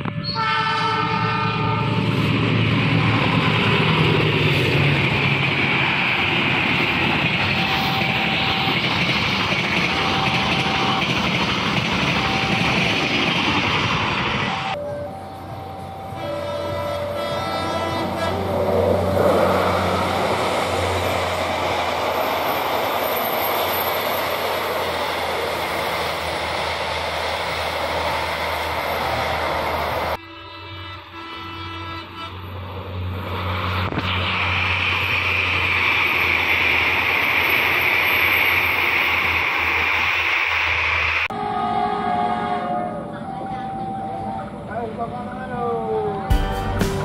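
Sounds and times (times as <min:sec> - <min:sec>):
train rumbling past: 0:00.0 - 0:47.0
high hiss from rails: 0:32.9 - 0:41.3.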